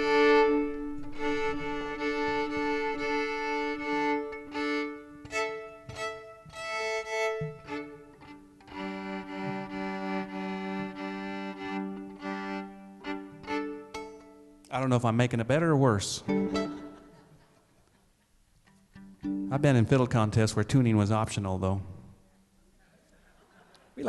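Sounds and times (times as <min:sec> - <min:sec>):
fiddle strings bowed: 0:00.0 - 0:14.6, 0:16.2 - 0:17.1.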